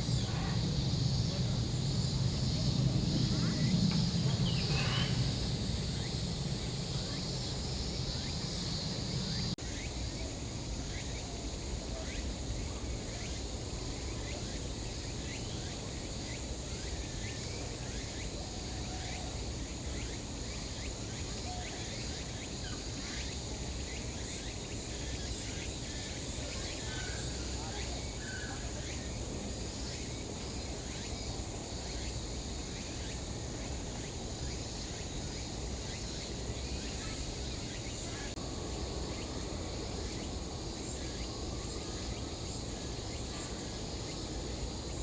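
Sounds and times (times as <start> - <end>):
insects droning: 0.0 - 45.0.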